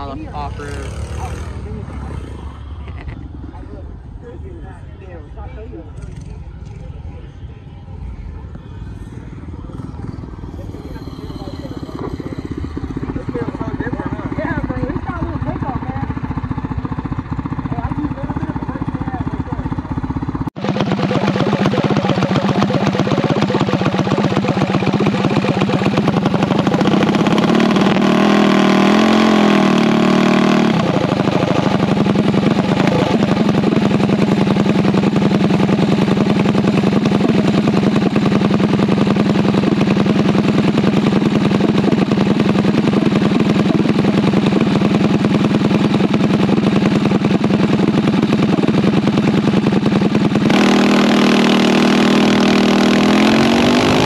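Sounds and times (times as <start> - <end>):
mini bike engine running: 0.0 - 4.4, 5.9 - 54.0.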